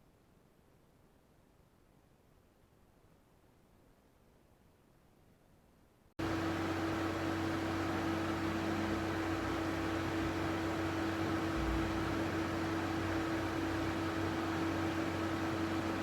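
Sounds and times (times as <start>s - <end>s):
fan hiss: 0.0s - 16.0s
low hum: 6.2s - 16.0s.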